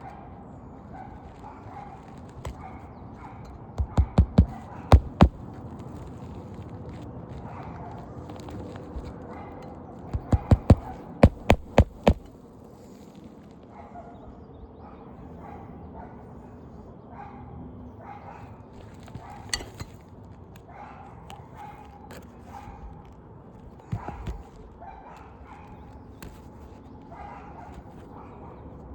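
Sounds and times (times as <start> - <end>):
hammer striking roofing nails: 3.8 - 5.4, 10.2 - 12.3.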